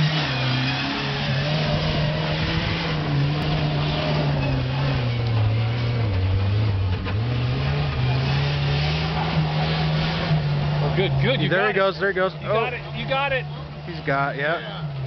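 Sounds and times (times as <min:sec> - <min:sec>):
off-road vehicle engine under load: 0:00.0 - 0:15.0.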